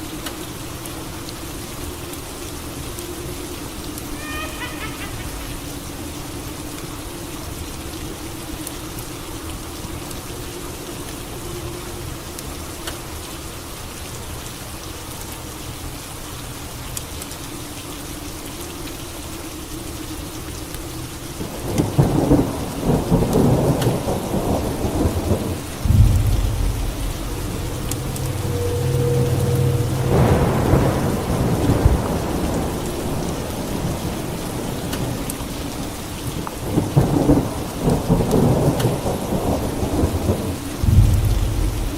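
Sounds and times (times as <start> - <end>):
steady rain falling: 0.0 - 41.9
low thunder rumble: 21.6 - 35.2, 36.6 - 41.9.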